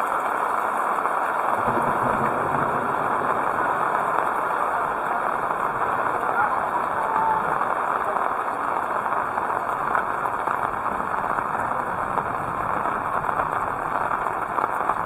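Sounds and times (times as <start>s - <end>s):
heavy rain hissing: 0.0s - 15.0s
low rumble: 1.6s - 7.1s.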